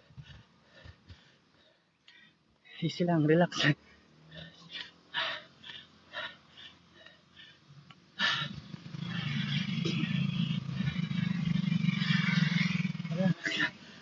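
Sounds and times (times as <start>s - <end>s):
faint short breaths: 0.0s - 2.8s, 3.8s - 8.8s
vehicle engine humming: 0.0s - 14.0s.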